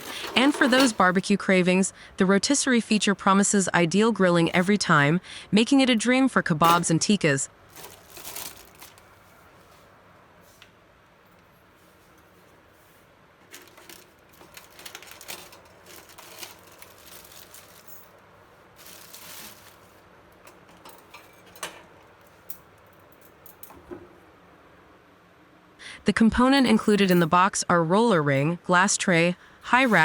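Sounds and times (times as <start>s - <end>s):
packaging rustling: 0.0s - 1.2s, 7.7s - 9.2s, 13.4s - 21.2s, 29.8s - 30.0s.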